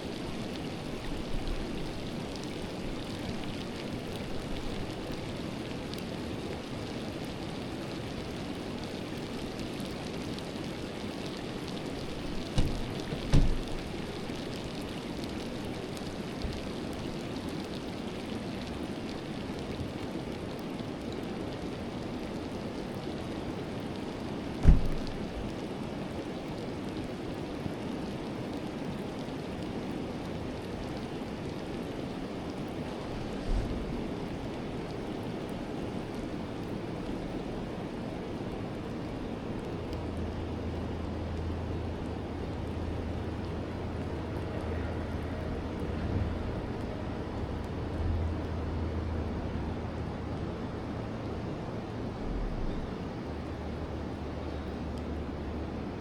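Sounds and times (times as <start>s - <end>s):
faint water ticks: 0.0s - 56.0s
river water flowing: 0.0s - 56.0s
low thump: 12.4s - 13.9s, 24.6s - 25.2s.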